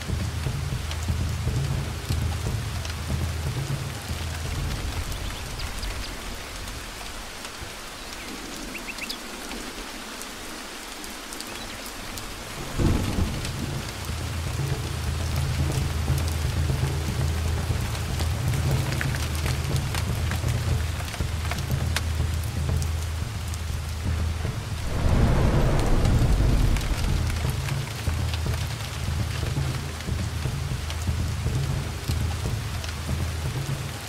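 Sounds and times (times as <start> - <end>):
heavy rain falling: 0.0 - 34.0
thunder rumbling: 12.2 - 14.6, 24.0 - 30.2
loud thunderclap: 12.6 - 14.0, 24.6 - 28.7.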